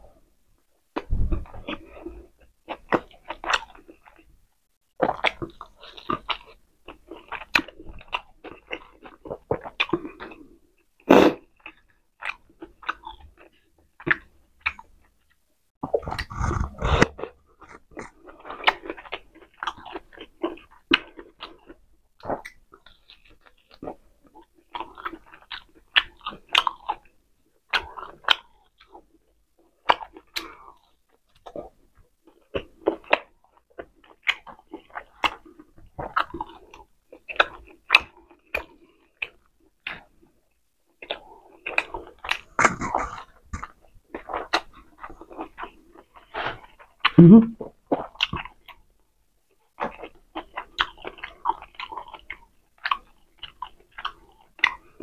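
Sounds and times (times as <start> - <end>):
wet chewing and lip smacks: 5.0 - 48.9, 49.5 - 55.0.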